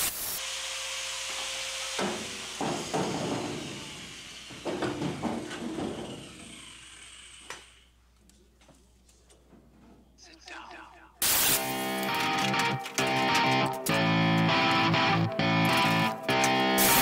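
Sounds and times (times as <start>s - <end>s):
steady hiss: 0.0s - 0.4s, 11.2s - 12.1s
sheet metal knocks and clunks: 2.0s - 3.9s, 4.6s - 6.3s.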